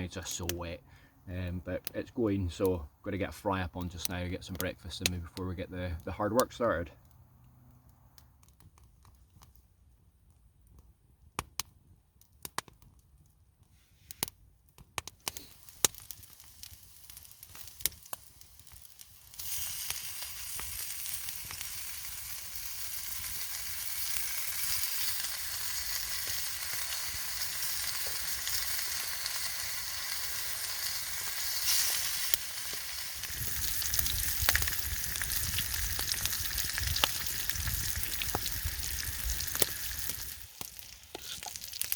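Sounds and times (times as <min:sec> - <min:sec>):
sharp clicks and crackles: 0:11.4 - 0:13.0, 0:14.2 - 0:22.2, 0:22.9 - 0:41.9
food sizzling in a pan: 0:15.3 - 0:41.9.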